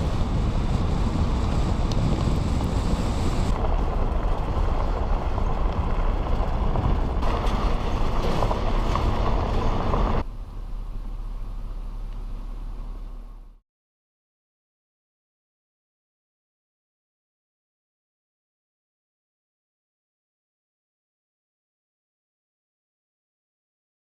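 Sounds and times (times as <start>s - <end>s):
road and wind noise: 0.0s - 13.6s
truck engine under load: 0.0s - 13.6s.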